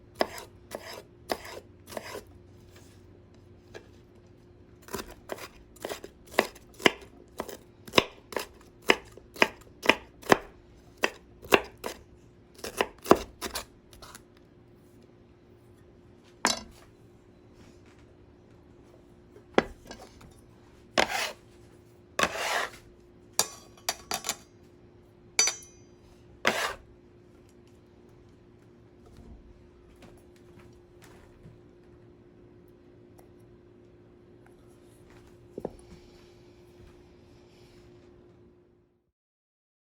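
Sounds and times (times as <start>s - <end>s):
knife chopping on cutting board: 0.2s - 2.3s, 4.8s - 12.0s, 12.6s - 14.2s, 19.6s - 20.1s, 21.0s - 21.4s, 22.2s - 22.8s, 26.5s - 26.8s
knife scraping: 0.2s - 2.3s, 4.8s - 12.0s, 12.6s - 14.2s, 21.0s - 21.5s, 22.2s - 24.4s, 25.4s - 25.8s, 26.4s - 26.8s.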